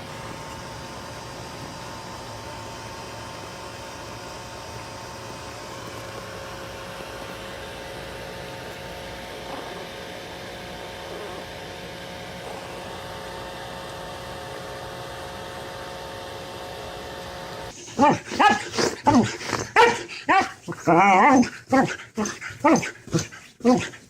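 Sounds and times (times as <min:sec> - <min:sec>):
steady mechanical hum: 0:00.0 - 0:24.0
dog barking: 0:18.0 - 0:19.2, 0:19.8 - 0:20.6.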